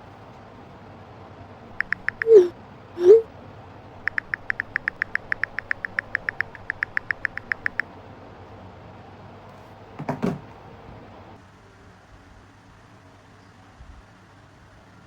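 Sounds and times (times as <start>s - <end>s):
rapid sharp clicks: 1.8s - 3.2s, 4.0s - 7.9s.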